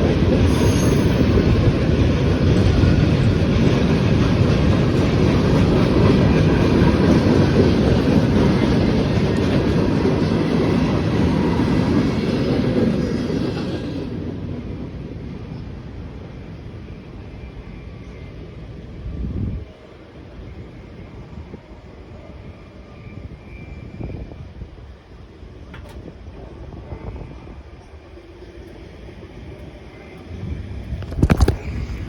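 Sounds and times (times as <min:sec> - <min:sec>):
freight train cars rolling: 0:00.0 - 0:19.0.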